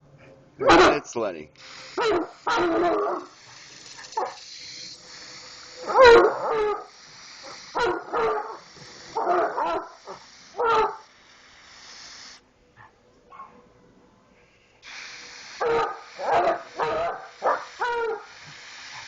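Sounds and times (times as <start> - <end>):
dog howling: 15.6 - 18.3.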